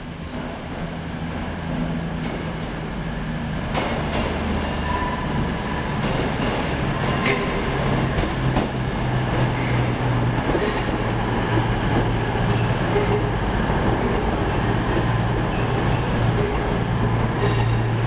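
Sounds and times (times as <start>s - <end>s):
diesel train engine hum: 0.0s - 18.0s.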